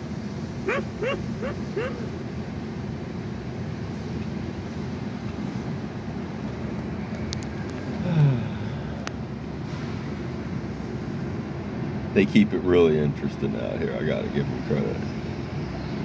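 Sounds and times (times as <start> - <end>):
low background rumble: 0.0 - 5.2
bird calls: 0.6 - 2.2.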